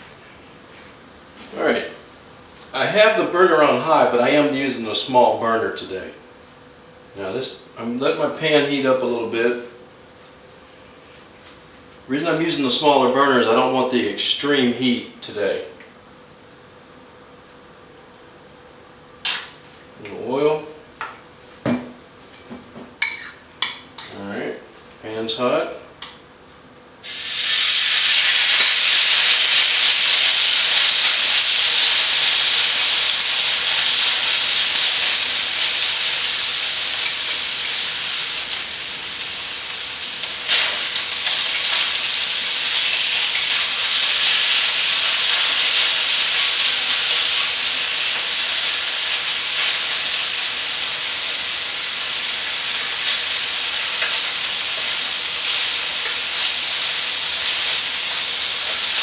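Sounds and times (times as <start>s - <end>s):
meat sizzling in hot oil: 27.0s - 59.0s.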